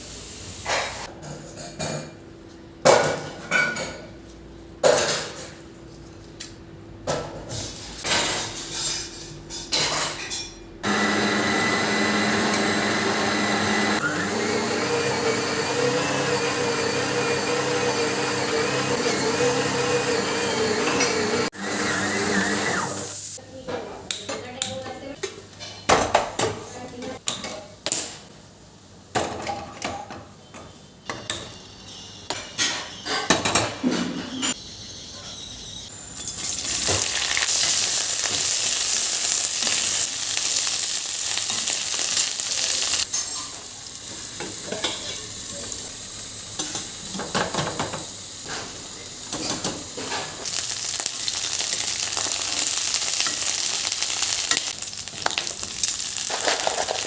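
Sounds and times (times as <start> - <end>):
food sizzling in a pan: 0.0 - 1.1, 22.6 - 23.4, 35.9 - 57.0
utensils clinking on cookware: 2.8 - 10.8, 29.2 - 38.6, 41.3 - 43.7, 44.4 - 45.8, 46.6 - 50.6, 51.4 - 57.0.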